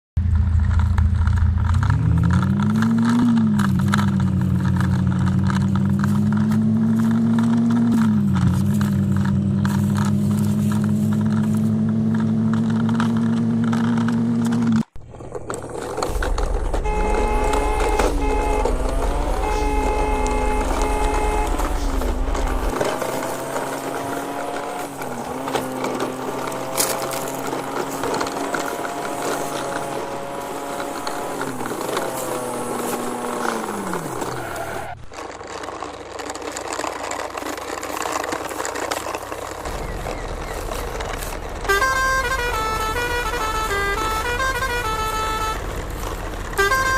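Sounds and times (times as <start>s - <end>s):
low engine drone: 0.2s - 35.0s
low hum: 14.8s - 25.2s
rising whine: 15.0s - 25.2s
tune of stepped tones: 15.9s - 34.0s, 39.7s - 46.9s.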